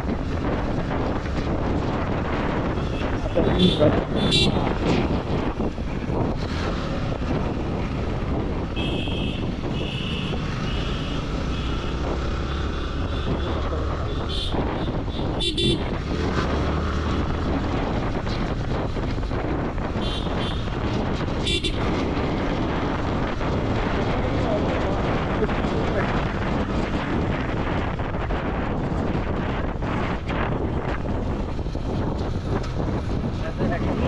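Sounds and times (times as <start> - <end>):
motorcycle engine and wind noise: 0.0 - 34.0
vehicle horns honking: 2.8 - 4.7, 8.8 - 12.0, 13.1 - 16.0, 20.0 - 20.7, 21.4 - 21.9.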